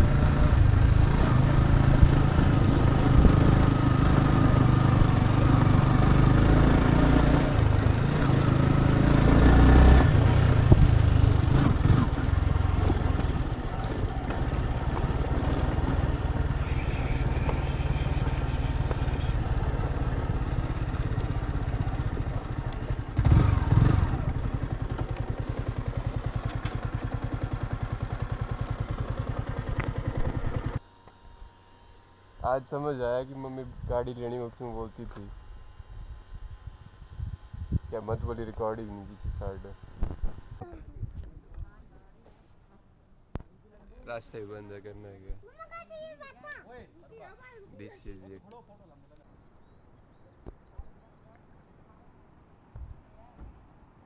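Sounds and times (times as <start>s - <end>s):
motorcycle engine running: 0.0s - 40.8s.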